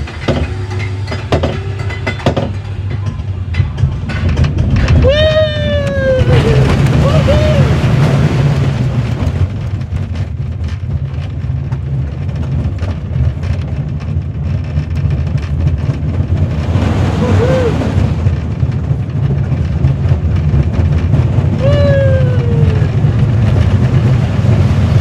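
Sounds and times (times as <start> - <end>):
roller coaster wheels rumbling: 0.0 - 25.0
wind noise on microphone: 0.0 - 25.0
rising and falling squeal: 17.0 - 18.3.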